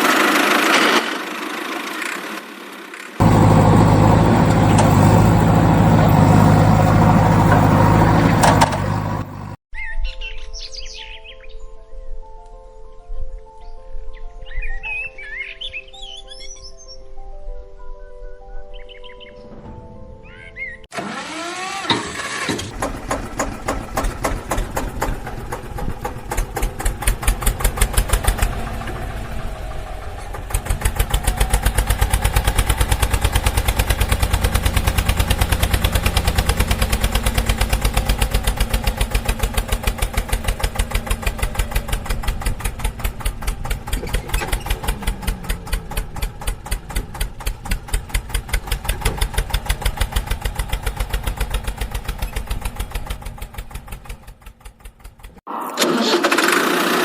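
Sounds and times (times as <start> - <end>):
tractor engine chugging: 0.1 - 9.6, 21.0 - 57.0.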